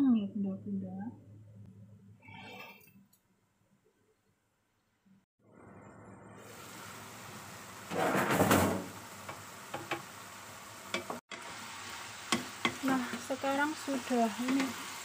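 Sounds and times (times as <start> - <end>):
food sizzling in a wok: 6.4 - 15.0
wooden spatula knocking on wok: 9.3 - 10.1, 12.3 - 13.2.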